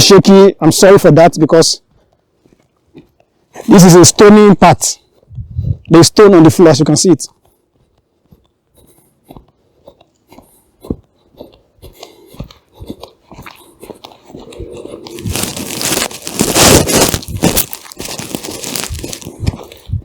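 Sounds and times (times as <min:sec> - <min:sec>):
footsteps crunching on stones: 0:01.8 - 0:03.8, 0:07.3 - 0:20.0
loud rustling: 0:15.1 - 0:19.4.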